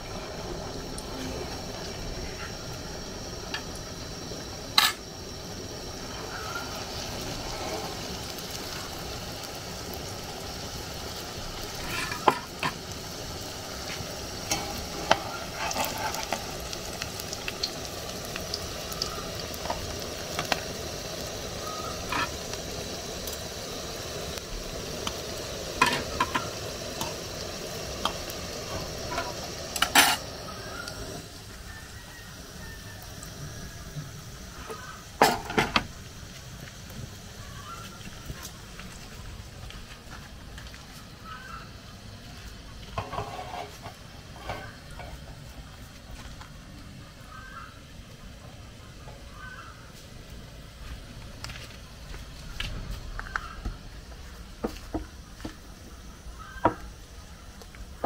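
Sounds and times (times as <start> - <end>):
dough sizzling in oil: 0.0 - 58.0.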